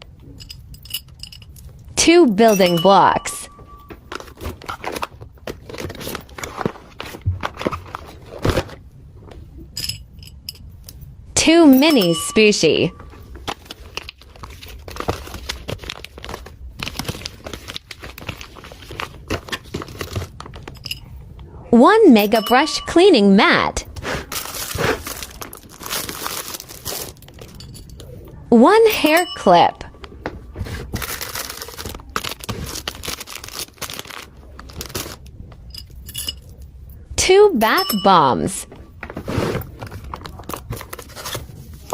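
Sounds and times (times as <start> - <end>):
plastic packaging crinkling: 13.4 - 20.7, 24.3 - 27.6, 30.6 - 35.3.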